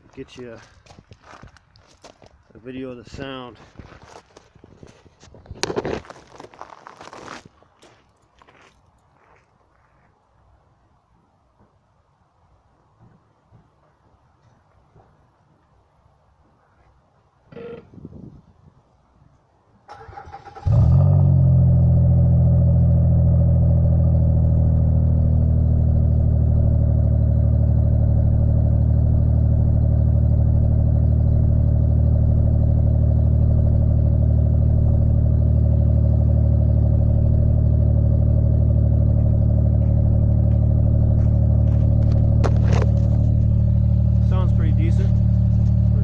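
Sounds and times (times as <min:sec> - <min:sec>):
car engine cranking and idling: 0:19.9 - 0:46.0.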